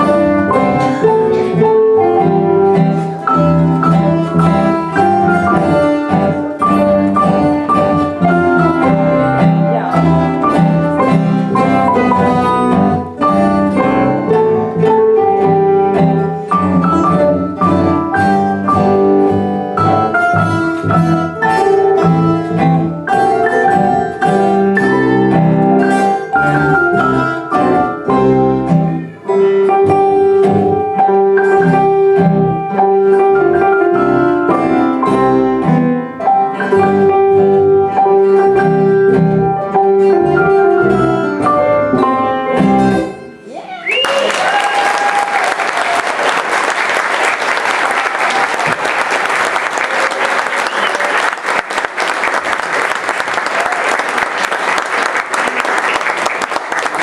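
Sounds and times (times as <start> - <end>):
plucked string ensemble playing: 0.0 - 43.5.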